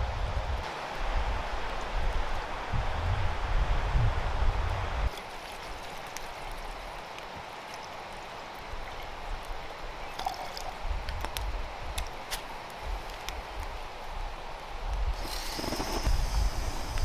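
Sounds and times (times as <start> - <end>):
stream water rushing: 5.1 - 10.9.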